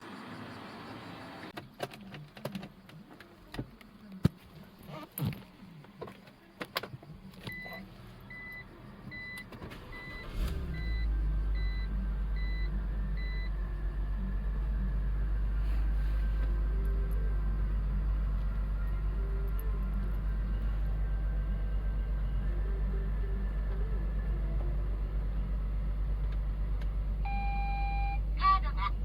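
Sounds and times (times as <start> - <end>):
car engine starting and running: 0.0 - 29.0
car warning chime beeping: 7.5 - 13.6, 27.2 - 29.0.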